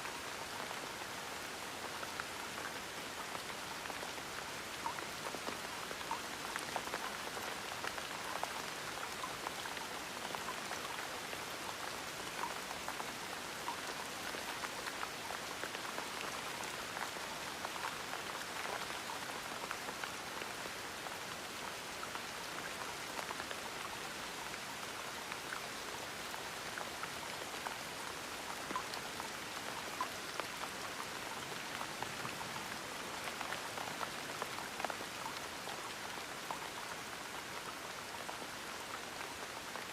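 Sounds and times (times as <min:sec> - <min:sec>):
gentle rain falling: 0:00.0 - 0:39.9
raindrop ticks: 0:03.3 - 0:11.0.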